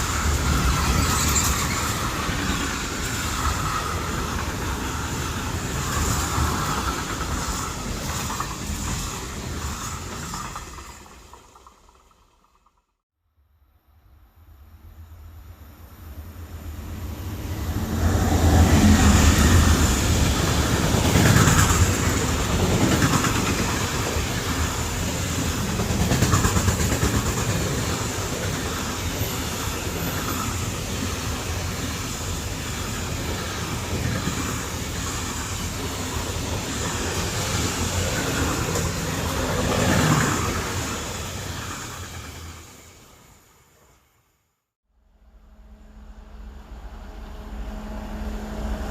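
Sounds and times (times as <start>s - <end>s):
train wheels clattering over rails: 18.6s - 42.6s.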